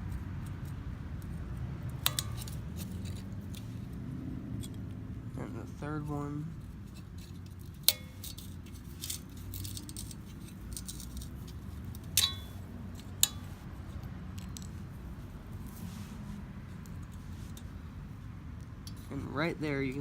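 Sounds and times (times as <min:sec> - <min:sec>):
low steady hum: 0:00.0 - 0:20.0
metal tools clinking and rattling: 0:02.0 - 0:03.9, 0:06.8 - 0:14.9.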